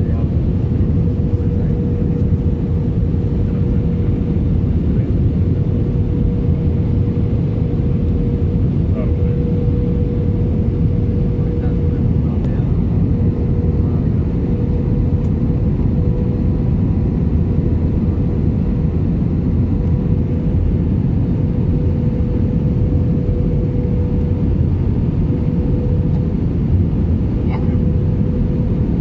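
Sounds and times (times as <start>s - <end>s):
engine and airflow rumble: 0.0s - 29.0s
steady hum: 0.0s - 29.0s.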